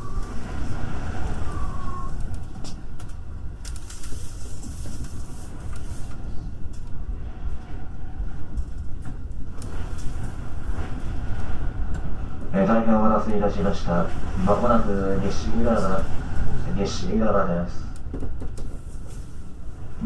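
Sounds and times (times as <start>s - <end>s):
high squeals: 0.0s - 2.3s
electric train rumbling on rails: 0.0s - 20.0s
train wheel clicks: 17.9s - 19.2s.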